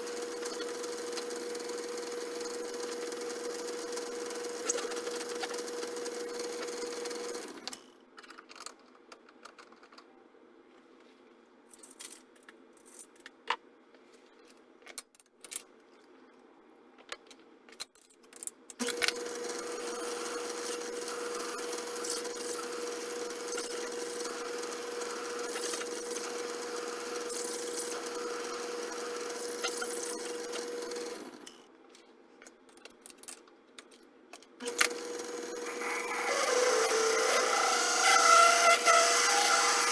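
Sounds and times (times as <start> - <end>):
machine tool motor running: 0.0 - 7.8, 18.8 - 31.6, 34.6 - 39.9.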